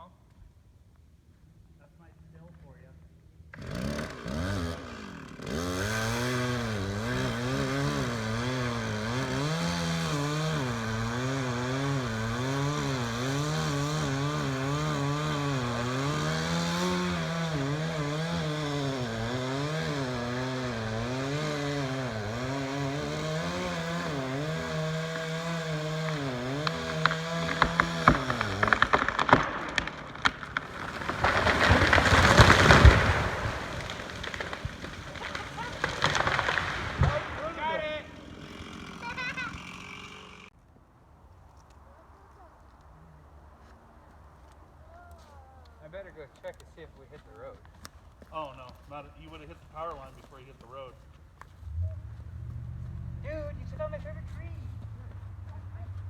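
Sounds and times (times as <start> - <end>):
chainsaw cutting tree trunk: 3.4 - 40.6, 44.5 - 56.0
sharp wood cracks: 3.5 - 43.0, 44.1 - 51.6
tree crashing to the ground: 3.6 - 39.8.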